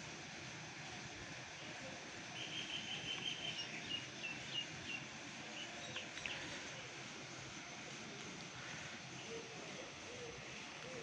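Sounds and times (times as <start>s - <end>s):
outdoor background hiss: 0.0s - 11.0s
small bird chirping: 2.4s - 6.9s.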